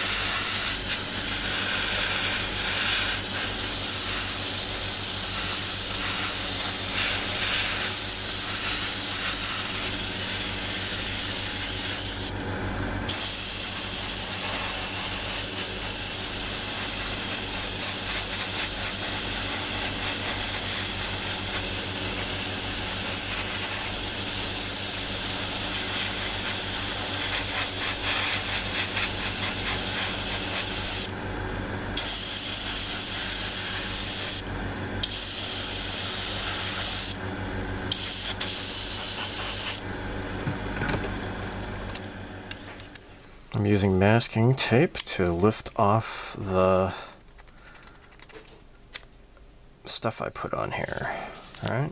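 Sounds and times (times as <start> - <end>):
airbrush spraying hiss: 0.0 - 12.3, 13.1 - 31.1, 32.0 - 37.2, 37.9 - 39.8
air compressor hum: 0.0 - 43.8.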